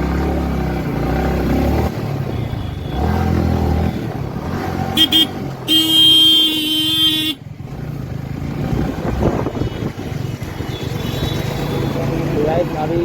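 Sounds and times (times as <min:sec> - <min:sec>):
motorcycle engine running: 0:00.0 - 0:13.0
road and wind noise: 0:00.0 - 0:13.0
vehicle horn honk: 0:05.0 - 0:07.4.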